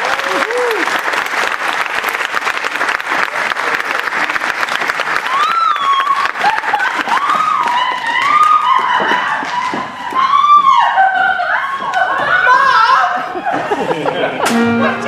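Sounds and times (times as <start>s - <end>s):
audience clapping: 0.0s - 10.5s
people cheering: 0.0s - 15.0s.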